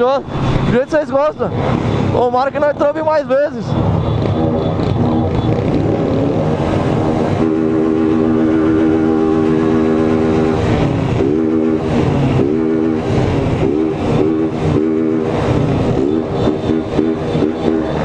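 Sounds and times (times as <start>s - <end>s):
motorcycle engine revving: 3.7s - 18.0s.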